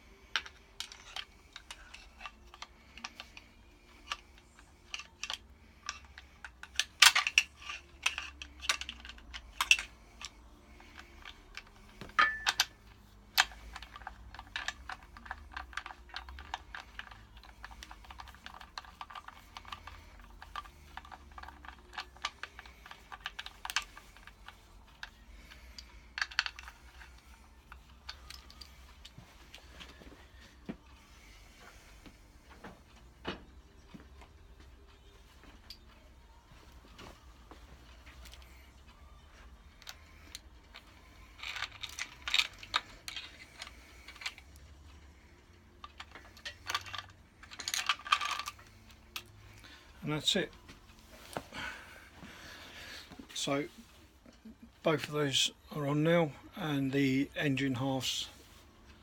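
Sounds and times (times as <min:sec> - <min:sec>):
faint steady hum: 0:00.0 - 0:59.0
metallic clicks and clinks: 0:00.3 - 0:30.0, 0:37.9 - 0:50.5.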